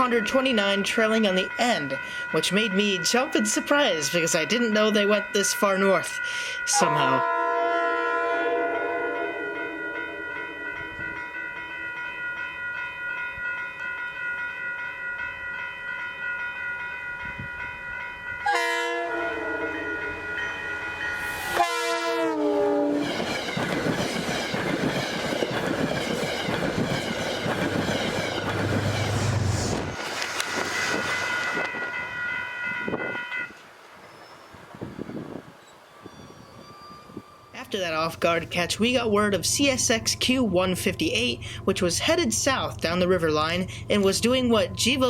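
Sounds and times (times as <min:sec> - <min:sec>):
train horn: 0:06.7 - 0:11.2, 0:18.4 - 0:20.5, 0:21.4 - 0:23.1
train wheels clattering over rails: 0:23.0 - 0:31.8.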